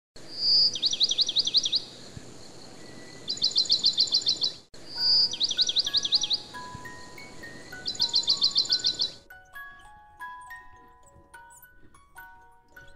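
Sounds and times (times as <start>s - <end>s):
bird song whistles: 0.4s - 1.9s, 2.8s - 11.7s
soft melody of held notes: 4.9s - 12.9s.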